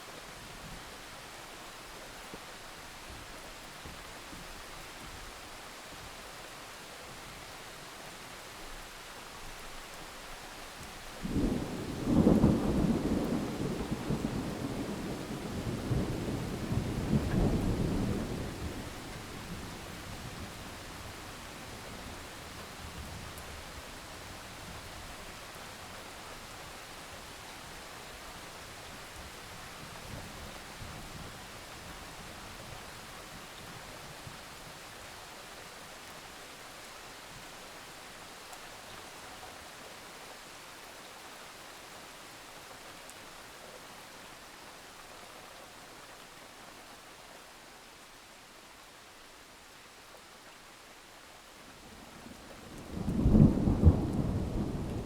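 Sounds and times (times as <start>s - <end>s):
steady rain: 0.0s - 55.0s
thunder rumbling: 52.6s - 55.0s.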